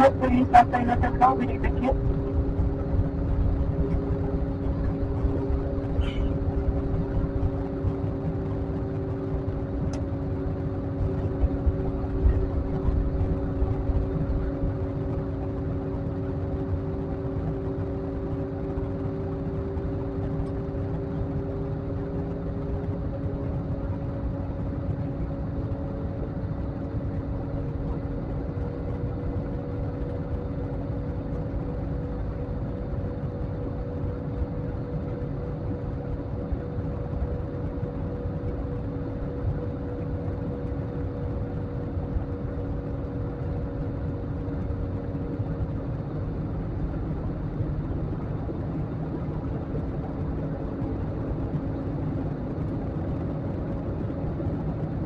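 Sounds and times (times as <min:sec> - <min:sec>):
low rushing cabin noise: 0:00.0 - 0:17.1
jet engine hums: 0:00.0 - 0:55.0.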